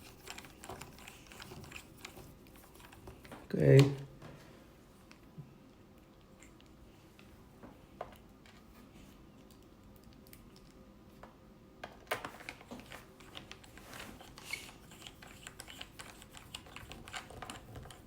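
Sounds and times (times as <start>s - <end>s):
screwdriver clicking on plastic: 0.0s - 3.4s, 13.2s - 18.0s.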